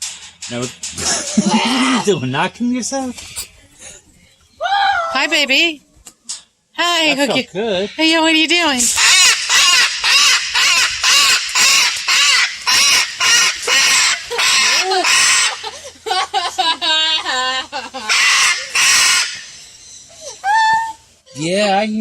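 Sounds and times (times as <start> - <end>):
lorikeets screeching: 8.8 - 21.1.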